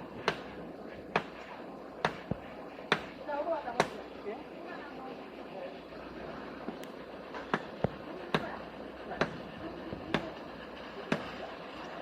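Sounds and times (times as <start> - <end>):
background hum of work noise: 0.0 - 12.0.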